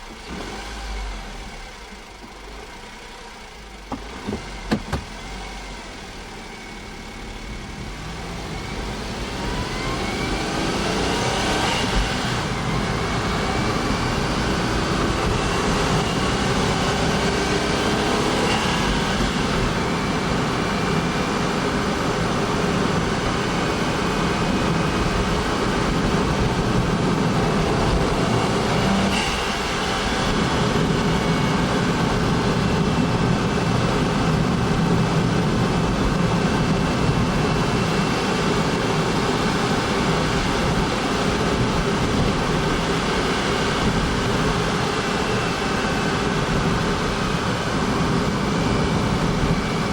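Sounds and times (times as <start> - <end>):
car engine revving: 0.0 - 49.9.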